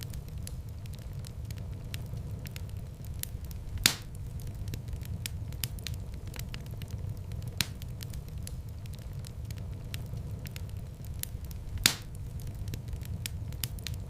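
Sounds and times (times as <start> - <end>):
wood fire crackling: 0.0 - 14.0
loud fire pop: 3.8 - 4.2, 11.8 - 12.2.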